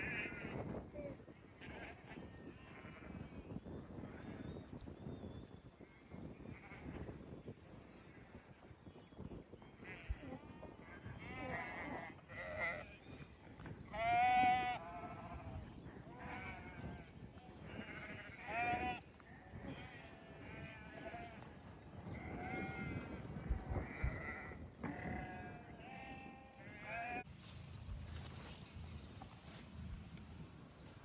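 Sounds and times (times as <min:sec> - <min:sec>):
sheep bleating: 0:09.8 - 0:13.0, 0:13.9 - 0:17.0, 0:17.6 - 0:21.4, 0:23.8 - 0:27.3.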